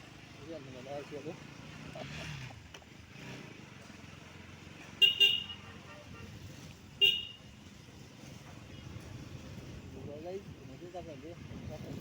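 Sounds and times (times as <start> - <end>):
low road noise: 0.0 - 12.0
vehicle horn toots: 5.0 - 5.6, 7.0 - 7.4.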